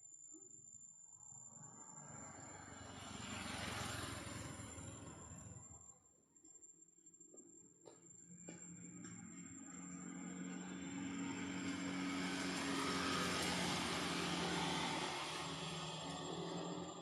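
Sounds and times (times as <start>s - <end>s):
passing engine hum: 1.5s - 5.9s, 8.3s - 17.0s.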